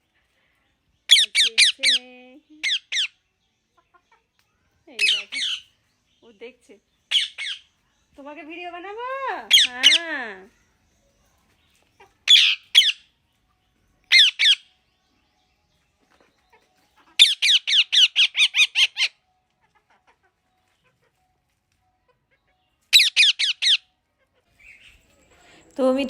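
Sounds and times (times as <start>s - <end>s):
parrot squawking: 1.1s - 2.0s, 2.6s - 3.2s, 5.0s - 5.6s, 7.1s - 7.7s, 9.5s - 10.0s, 12.2s - 13.0s, 14.1s - 14.7s, 17.2s - 19.2s, 22.9s - 23.9s.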